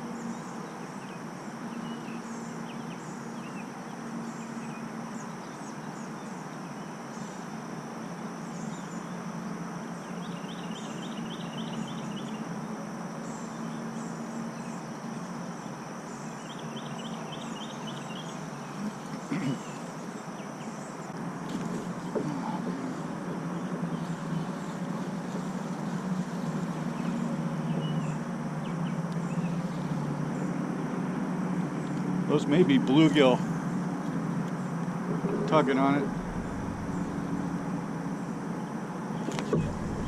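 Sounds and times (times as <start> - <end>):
insects droning: 0.0 - 40.0
low steady hum: 33.2 - 40.0
rapid trills: 35.0 - 38.0.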